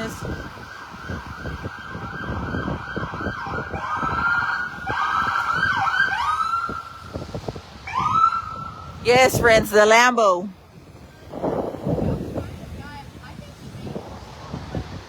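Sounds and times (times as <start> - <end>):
emergency vehicle siren: 0.0 - 9.0
street noise: 0.0 - 15.0.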